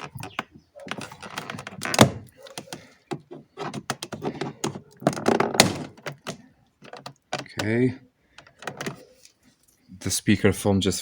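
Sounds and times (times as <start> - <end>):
plastic car door parts knocking: 0.0 - 7.8.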